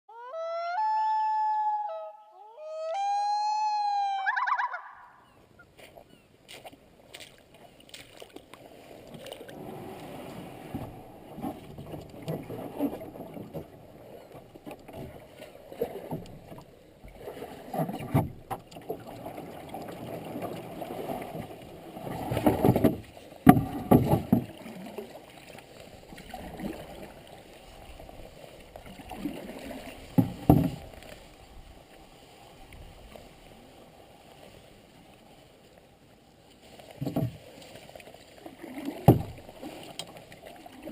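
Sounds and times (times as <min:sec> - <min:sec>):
paddle splashing water: 0:02.5 - 0:40.9
paddle knocks: 0:22.1 - 0:24.6, 0:30.0 - 0:31.0, 0:37.0 - 0:37.4, 0:38.8 - 0:40.2.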